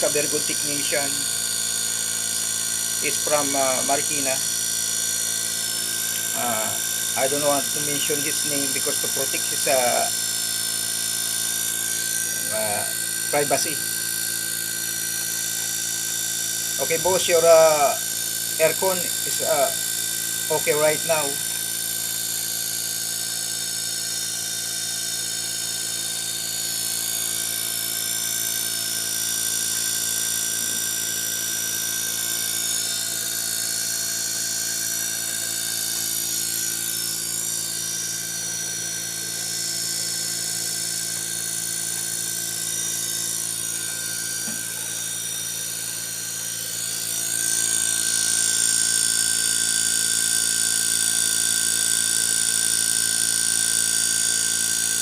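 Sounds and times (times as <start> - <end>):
air conditioner humming and whining: 0.0 - 21.6
fan air noise: 12.1 - 13.9.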